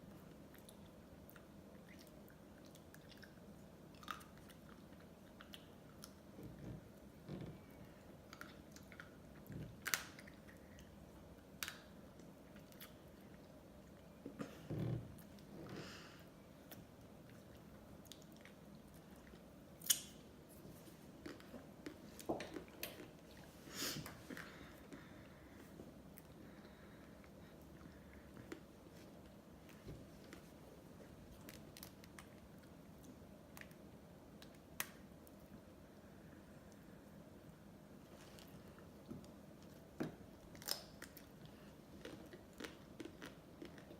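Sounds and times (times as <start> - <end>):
soft chewing: 0.0 - 34.6, 35.2 - 43.9
mouth clicks and smacks: 19.8 - 20.2.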